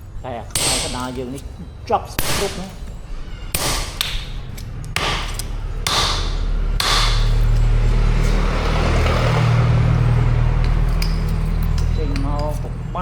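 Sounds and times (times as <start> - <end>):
low machine hum: 0.0 - 13.0
hammer striking hot metal: 0.5 - 7.8.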